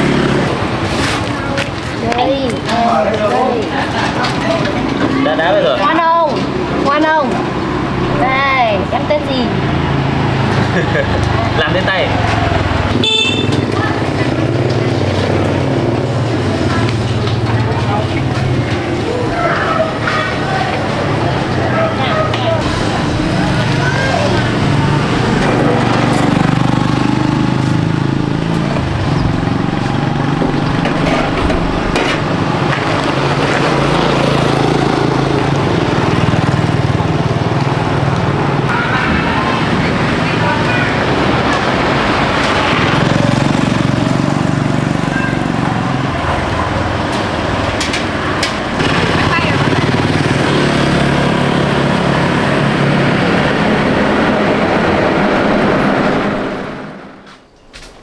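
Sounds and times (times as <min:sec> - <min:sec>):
small engine running loudly: 0:00.0 - 0:01.2, 0:04.6 - 0:57.2
road noise: 0:00.0 - 0:58.0.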